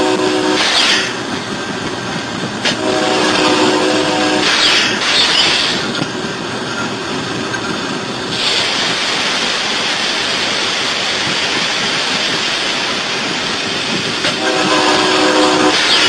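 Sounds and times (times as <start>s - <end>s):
locomotive rushing along track: 0.0s - 16.0s.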